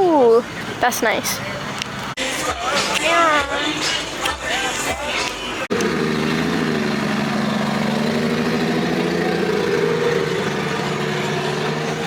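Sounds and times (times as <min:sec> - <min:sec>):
car engine idling: 0:04.5 - 0:12.0.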